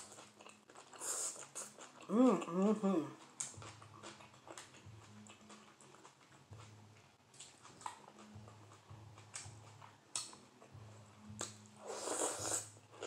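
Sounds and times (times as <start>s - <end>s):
soft chewing with mouth clicks: 0.0s - 13.0s.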